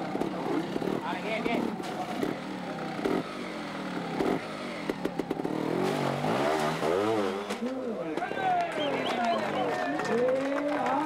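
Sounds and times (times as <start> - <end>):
motorcycle engine blipping: 7.6 - 10.0.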